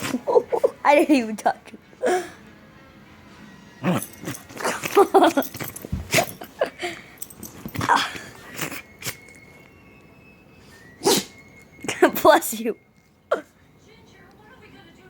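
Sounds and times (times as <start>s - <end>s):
dog whining: 0.0s - 0.9s, 3.8s - 12.0s
dog sneezing: 3.8s - 6.7s, 7.7s - 9.2s, 11.0s - 12.2s.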